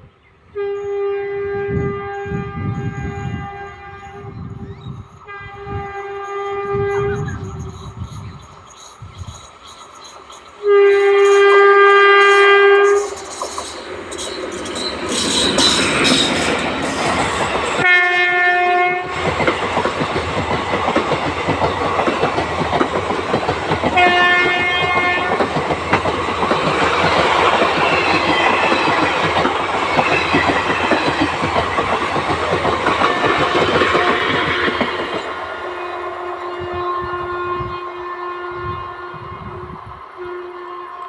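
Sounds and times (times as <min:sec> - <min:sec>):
electric train passing: 0:00.0 - 0:41.0
train horn blasts: 0:00.5 - 0:07.7, 0:10.6 - 0:13.4, 0:17.8 - 0:19.2, 0:23.9 - 0:25.6, 0:32.9 - 0:41.0.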